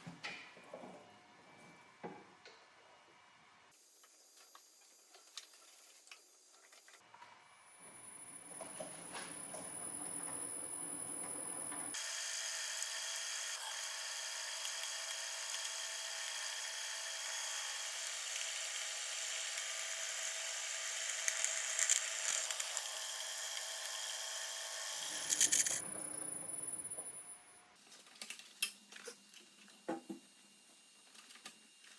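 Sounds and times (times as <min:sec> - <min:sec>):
small power tool whining: 0:11.9 - 0:26.9.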